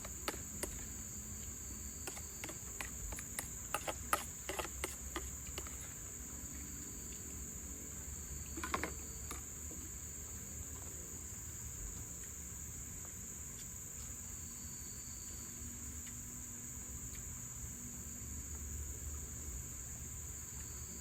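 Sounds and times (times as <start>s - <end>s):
crickets chirring: 0.0s - 21.0s
faint ticks: 11.9s - 12.4s, 15.9s - 16.3s, 17.0s - 17.4s.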